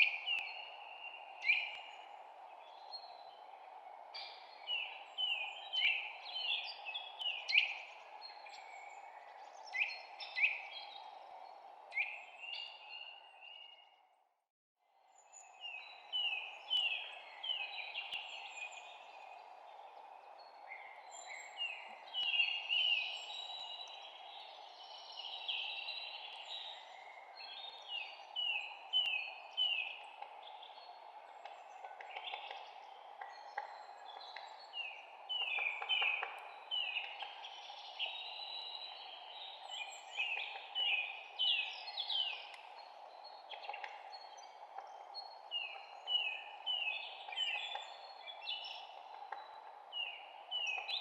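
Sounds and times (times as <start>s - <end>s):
songbirds chirping: 0.0s - 51.0s.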